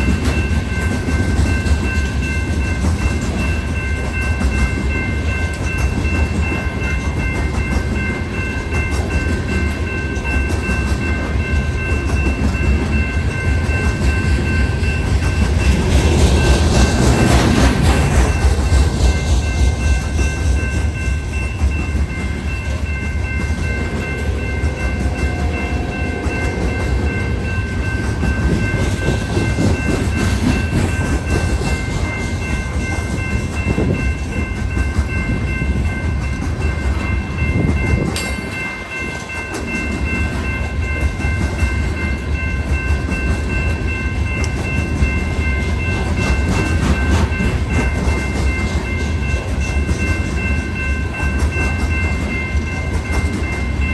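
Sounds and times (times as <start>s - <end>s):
train cars rumbling past: 0.0s - 53.9s
high thin steady tones: 22.3s - 30.2s.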